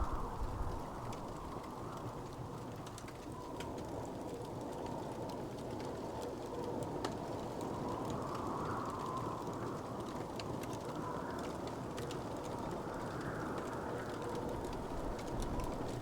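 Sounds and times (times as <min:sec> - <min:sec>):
low rumbling hiss: 0:00.0 - 0:01.8
wood fire crackling: 0:00.0 - 0:16.0.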